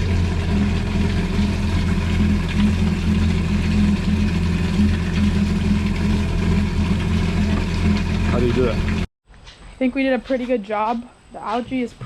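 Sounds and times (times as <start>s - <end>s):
jet ski engine idling: 0.0s - 9.1s.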